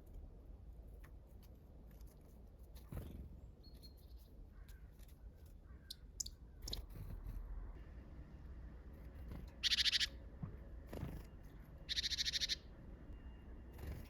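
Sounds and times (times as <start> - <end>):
faint songbird calls: 3.6 - 6.9, 9.6 - 10.2, 11.8 - 13.5.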